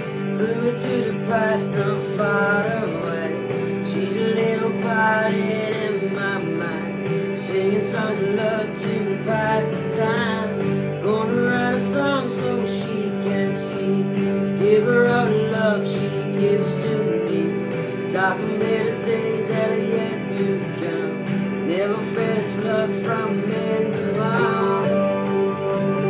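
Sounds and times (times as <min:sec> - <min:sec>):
acoustic guitar playing: 0:00.0 - 0:26.0
person singing: 0:00.0 - 0:26.0.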